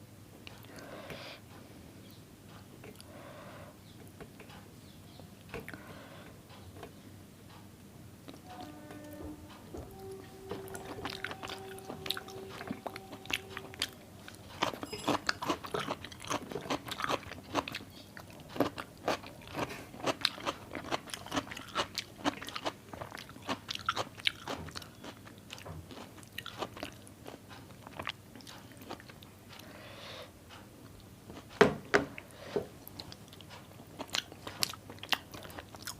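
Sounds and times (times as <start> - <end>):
person chewing with wet smacks: 10.7 - 29.7, 32.8 - 35.9.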